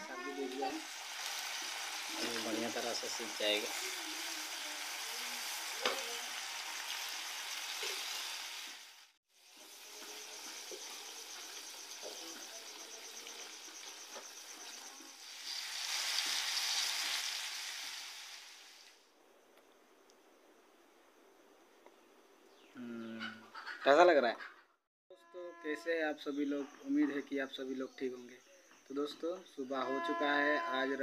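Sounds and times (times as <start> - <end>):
meat sizzling in a wok: 0.0 - 19.0.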